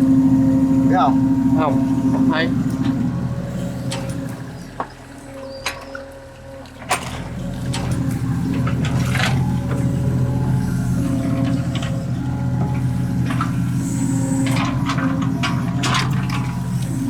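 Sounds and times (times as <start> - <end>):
excavator diesel engine running: 0.0 - 17.0
machine knocks and clanks: 6.9 - 17.0.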